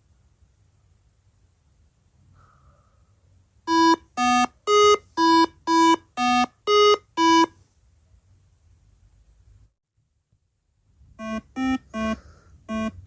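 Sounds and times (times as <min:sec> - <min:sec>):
electronic beeping tune: 0:03.7 - 0:07.5, 0:11.2 - 0:13.0.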